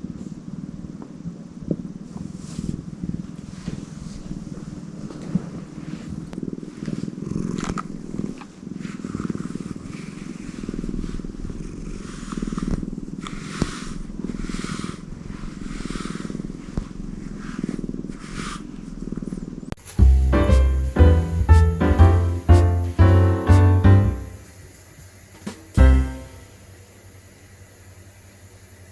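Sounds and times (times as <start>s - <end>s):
cat purring: 5.9s - 18.1s
music: 19.9s - 24.5s, 25.8s - 26.6s.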